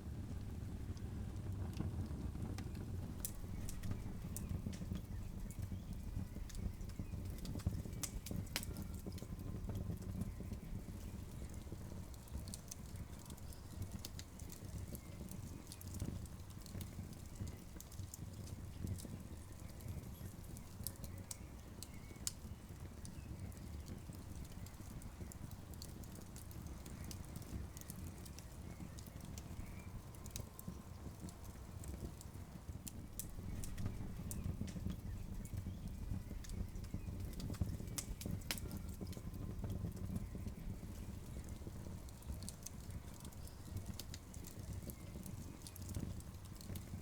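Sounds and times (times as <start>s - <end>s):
campfire crackling and popping: 0.0s - 47.0s
low fire rumble: 0.0s - 47.0s.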